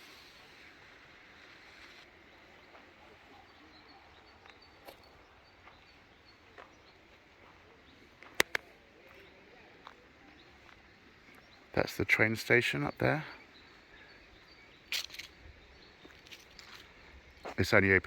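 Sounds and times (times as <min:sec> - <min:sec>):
sharp clicks: 0:08.3 - 0:08.6.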